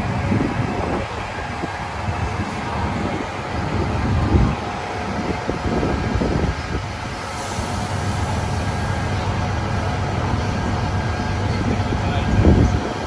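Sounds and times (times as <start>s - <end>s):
vehicle engines droning: 0.0s - 13.0s
wind gusting on microphone: 0.0s - 13.0s.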